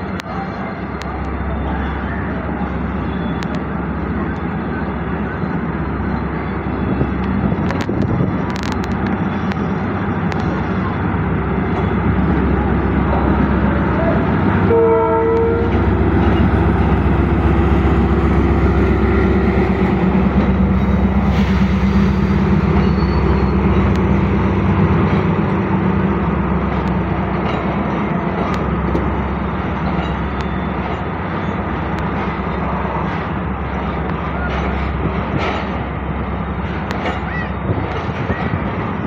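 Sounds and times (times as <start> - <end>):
train wheels rumbling on rails: 0.0 - 39.0
train horn blast: 14.6 - 15.9.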